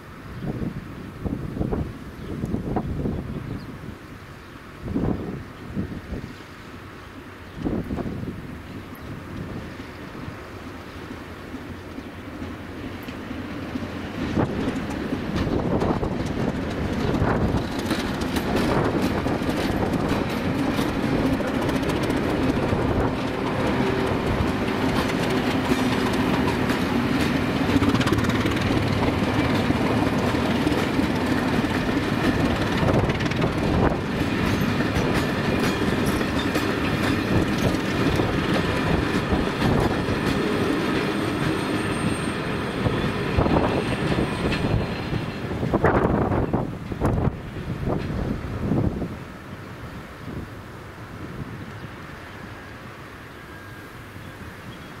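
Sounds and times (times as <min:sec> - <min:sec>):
train coaches rumbling: 0:00.0 - 0:55.0
wheels clacking over rail joints: 0:11.5 - 0:48.9.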